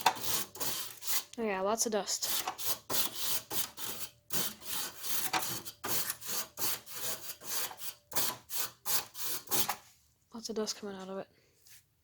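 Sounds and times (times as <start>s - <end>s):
brush scrubbing metal fins: 0.0s - 1.4s.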